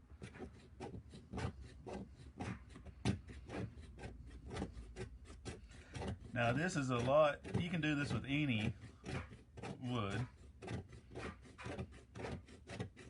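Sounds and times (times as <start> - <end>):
knife scraping wood: 0.0 - 13.0.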